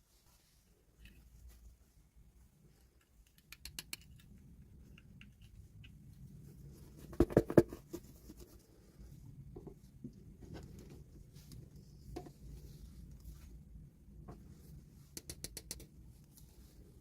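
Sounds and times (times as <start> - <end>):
taps and knocks of packaging: 7.1 - 7.8.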